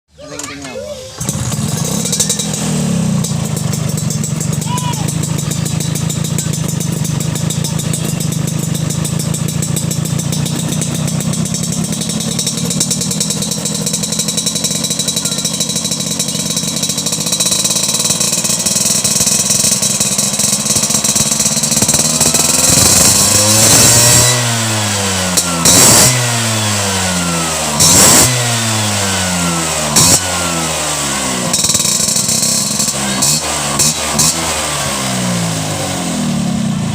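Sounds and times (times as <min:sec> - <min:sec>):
motorcycle engine idling and revving: 0:00.1 - 0:36.9.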